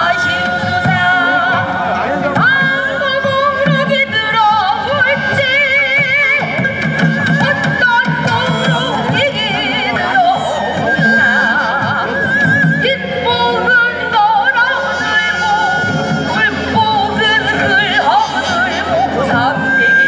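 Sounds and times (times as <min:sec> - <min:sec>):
instrumental accompaniment: 0:00.0 - 0:20.0
folk singing with vibrato: 0:07.4 - 0:12.3, 0:12.9 - 0:20.0.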